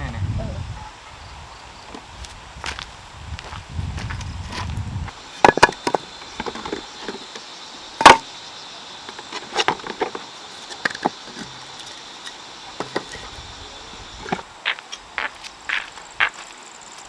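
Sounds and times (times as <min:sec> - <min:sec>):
faint insect drone: 0:00.0 - 0:17.0
sticks knocking and cracking: 0:08.0 - 0:08.3, 0:09.1 - 0:13.3.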